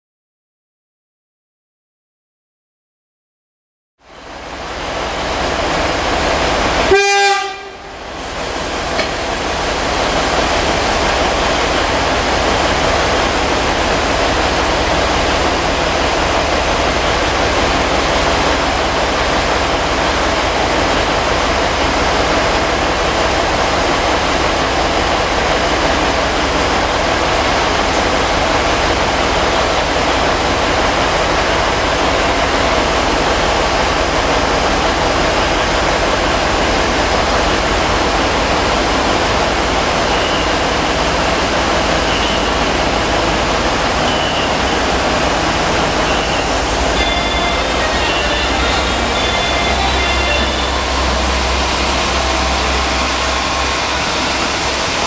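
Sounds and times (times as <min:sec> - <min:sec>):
diesel railcar idling: 0:04.1 - 0:55.0
train horn toot: 0:06.9 - 0:07.9, 0:46.1 - 0:55.0.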